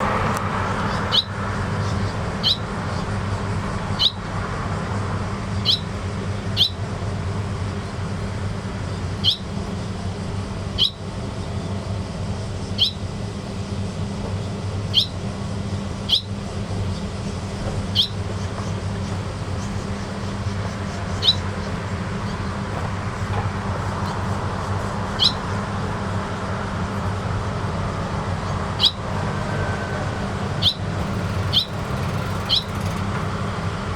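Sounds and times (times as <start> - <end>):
steady low hum: 0.0 - 33.9
swallow chirping: 0.8 - 4.2, 5.6 - 6.9, 9.0 - 9.6, 10.7 - 11.8, 12.6 - 13.2, 14.4 - 15.3, 16.0 - 33.9.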